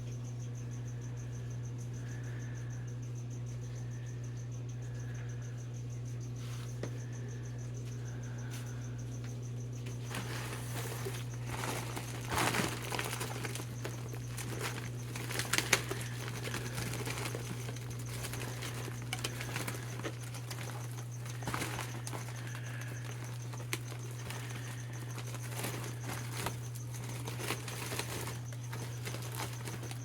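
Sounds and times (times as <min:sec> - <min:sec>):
low electrical hum: 0:00.0 - 0:30.0
plastic bags rustling and crinkling: 0:09.9 - 0:30.0.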